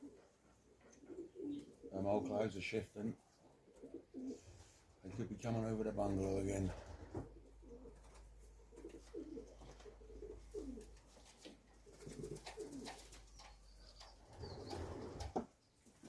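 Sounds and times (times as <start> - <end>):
pigeons cooing: 0.0 - 2.4, 3.4 - 4.8, 6.8 - 15.5.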